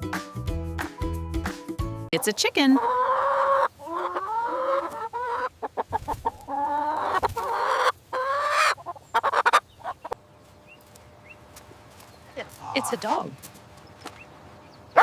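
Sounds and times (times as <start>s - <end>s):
chicken long drawn-out calls: 2.2s - 10.2s
chicken clucking: 2.2s - 11.4s, 12.4s - 13.4s.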